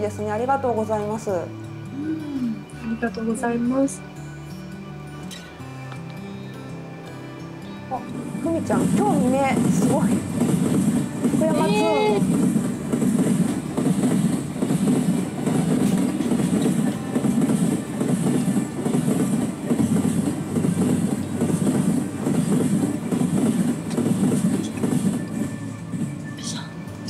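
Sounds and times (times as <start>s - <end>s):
train rumbling on rails: 7.9s - 27.0s.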